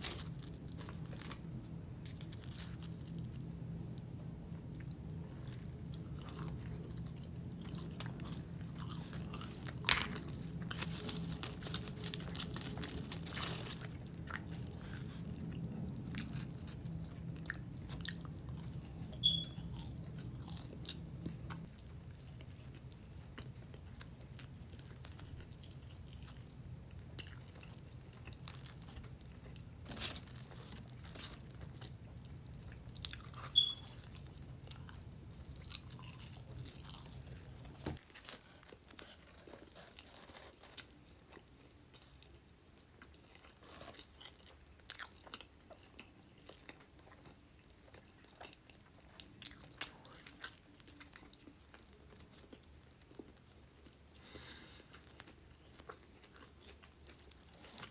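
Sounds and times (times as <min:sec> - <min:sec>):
food crunching: 0:00.0 - 0:57.9
low steady hum: 0:00.0 - 0:57.9
person biting and chewing: 0:04.8 - 0:21.7, 0:32.7 - 0:42.0.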